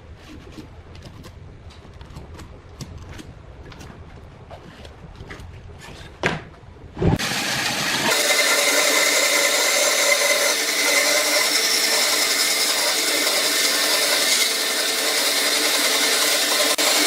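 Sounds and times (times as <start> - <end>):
electric power tool whining on wood: 7.2 - 17.0.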